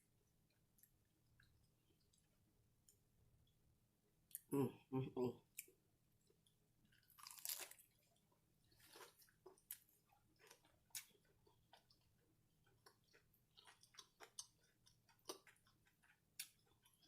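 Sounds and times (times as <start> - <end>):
chewing crunchy food: 5.6 - 17.0.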